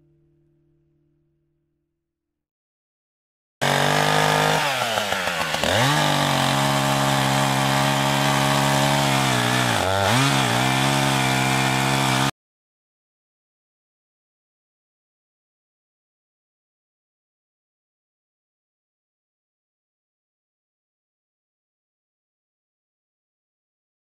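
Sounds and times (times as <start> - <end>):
chainsaw cutting wood: 3.6 - 12.3.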